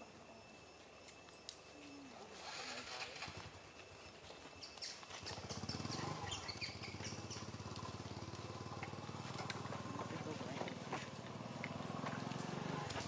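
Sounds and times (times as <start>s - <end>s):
small birds chirping: 3.9s - 13.0s.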